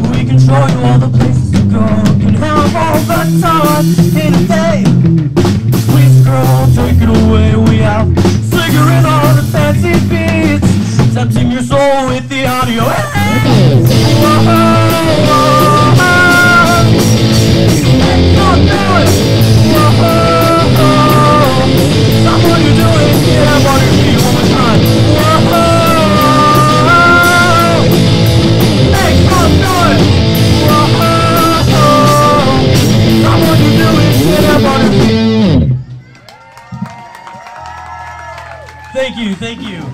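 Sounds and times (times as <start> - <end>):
live rock band playing: 0.0 - 36.0
bending lead guitar melody: 12.9 - 35.9.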